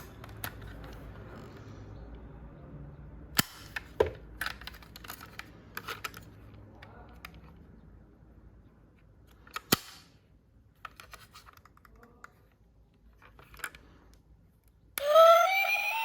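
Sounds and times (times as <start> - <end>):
plastic toy parts clicking: 3.3 - 7.6, 9.2 - 10.2, 13.1 - 15.2
electronic toy siren: 15.0 - 16.0.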